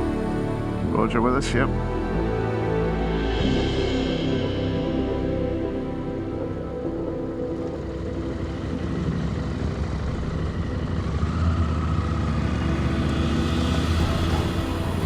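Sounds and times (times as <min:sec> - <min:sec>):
motorcycle engine running: 0:07.0 - 0:15.0.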